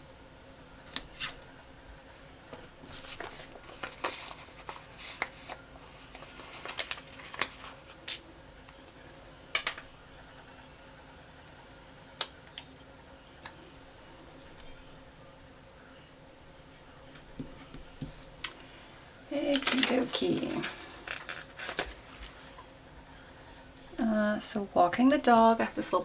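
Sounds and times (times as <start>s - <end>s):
steady low hum: 0.0s - 26.0s
paper rustling and crinkling: 2.8s - 8.2s, 19.5s - 22.7s.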